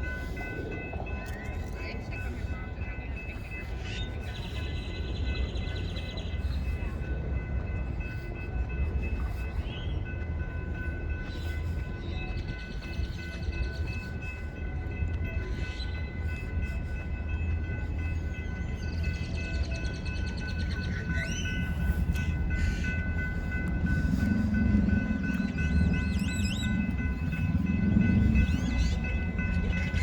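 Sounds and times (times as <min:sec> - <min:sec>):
train rumbling: 0:00.0 - 0:30.0.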